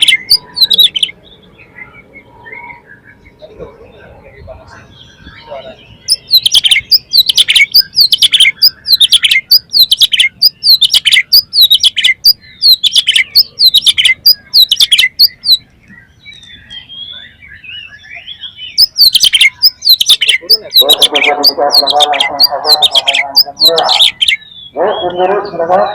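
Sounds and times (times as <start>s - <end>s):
bird singing rapid song: 0.0s - 25.9s.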